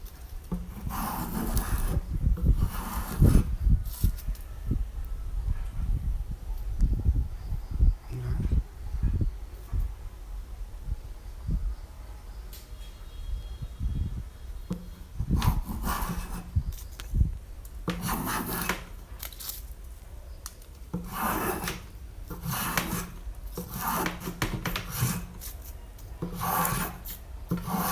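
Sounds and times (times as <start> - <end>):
hand tool rasping wood: 17.9 - 19.0, 21.0 - 25.5, 26.2 - 27.9.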